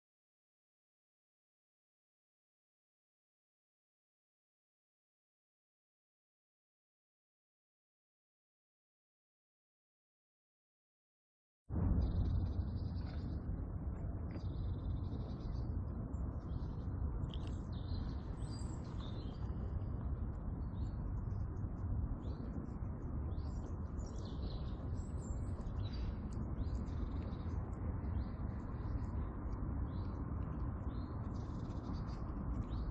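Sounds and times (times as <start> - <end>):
steady low rumble: 11.7 - 32.9
small birds chirping: 11.8 - 32.9.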